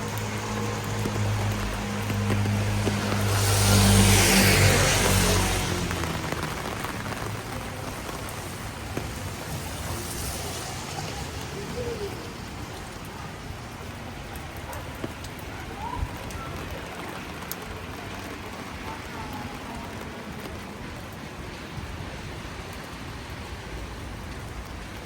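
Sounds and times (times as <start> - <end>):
passing vehicle: 0.0 - 13.1
raindrops ticking: 0.0 - 21.2
steady rain on street: 0.0 - 25.0.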